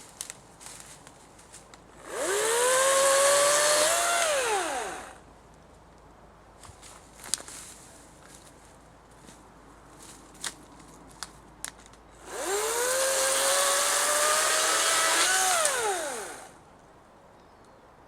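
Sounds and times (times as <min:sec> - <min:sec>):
electric chainsaw motor whine: 0:02.0 - 0:05.2, 0:12.2 - 0:16.6.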